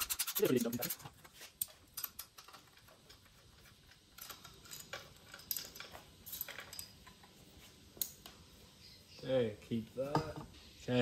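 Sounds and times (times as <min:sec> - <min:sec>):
hand tools clicking on bolts: 0:00.0 - 0:07.2.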